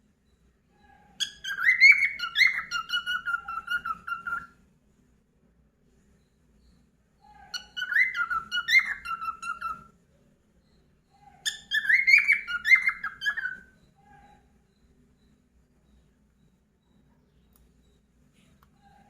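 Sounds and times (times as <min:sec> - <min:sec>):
cockatiel whistling: 0:01.2 - 0:04.6, 0:07.3 - 0:09.9, 0:11.4 - 0:14.3.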